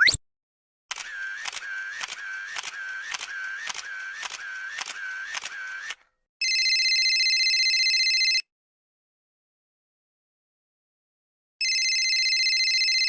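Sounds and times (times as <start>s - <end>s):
sharp click with short whir: 0.9s - 6.1s.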